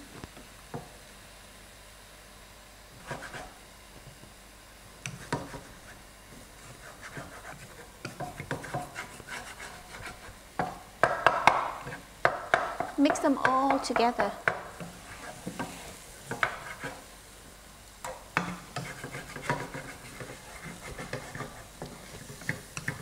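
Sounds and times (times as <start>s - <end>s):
spatula scraping a frying pan: 6.6s - 10.4s, 13.7s - 17.1s, 18.4s - 23.0s.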